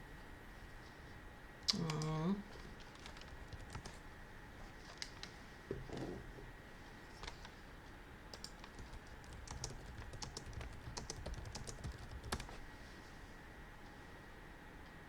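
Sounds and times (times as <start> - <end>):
typing on computer keyboard: 1.8 - 4.0, 4.9 - 5.3, 7.2 - 7.5, 8.3 - 12.6.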